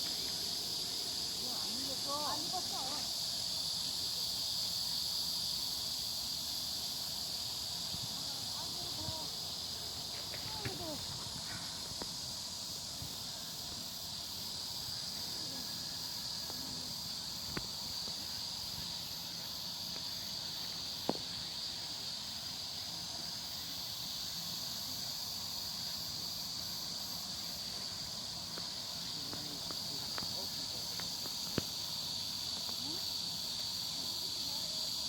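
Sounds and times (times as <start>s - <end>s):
insects chirping: 0.0s - 35.0s.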